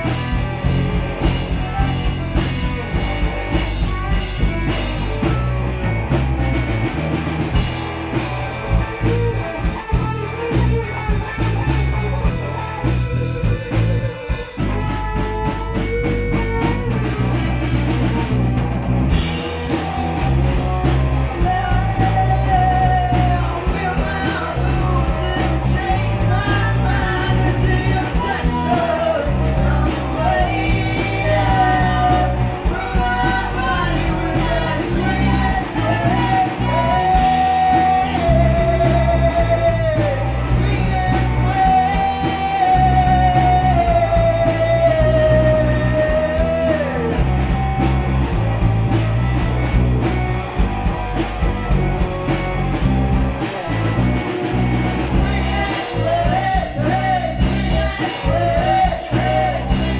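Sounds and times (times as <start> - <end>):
bass line: 0.0 - 59.9
drums: 0.0 - 59.9
guitar: 0.0 - 59.9
person singing: 19.8 - 48.1, 53.4 - 59.9.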